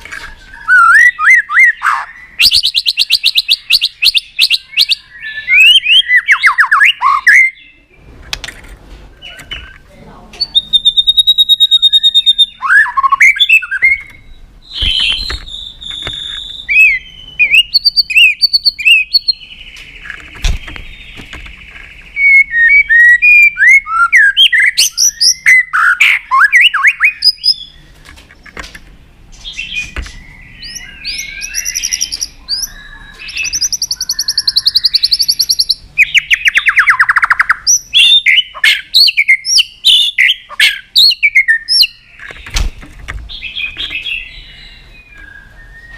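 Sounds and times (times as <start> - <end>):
bird singing varied song: 0.0 - 8.1, 9.1 - 45.9.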